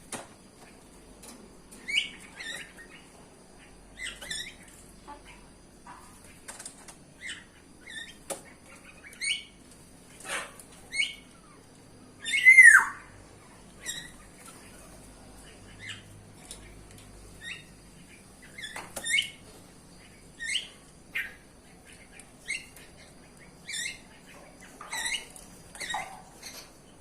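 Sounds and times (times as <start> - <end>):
bird calls gliding in pitch: 12.2 - 13.2.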